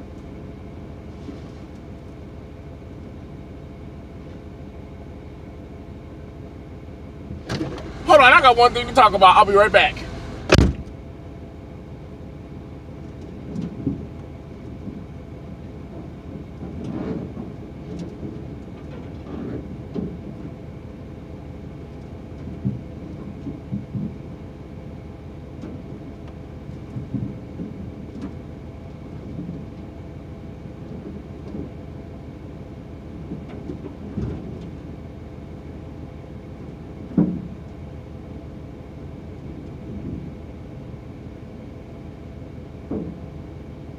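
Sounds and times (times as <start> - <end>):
steady hum: 6.1 - 11.7
door shutting: 10.1 - 10.9.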